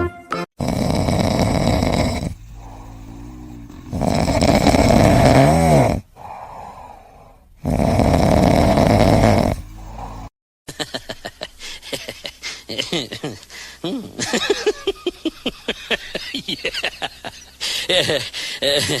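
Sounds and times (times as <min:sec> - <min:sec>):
pet snoring: 0:00.6 - 0:06.3, 0:07.6 - 0:10.3.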